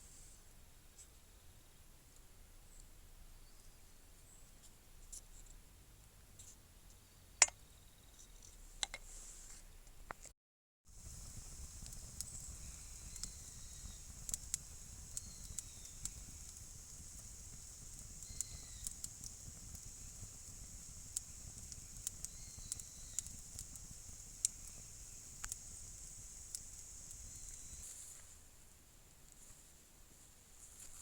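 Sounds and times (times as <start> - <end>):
wood fire crackling: 10.9 - 28.3
steady high hiss: 10.9 - 28.7.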